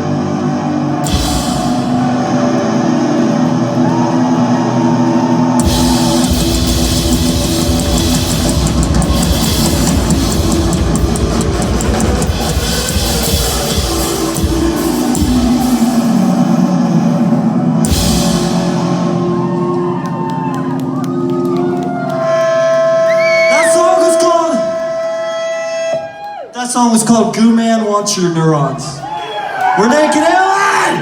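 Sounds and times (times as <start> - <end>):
drum kit and cymbals: 0.0 - 19.7
live rock band playing: 1.0 - 25.2.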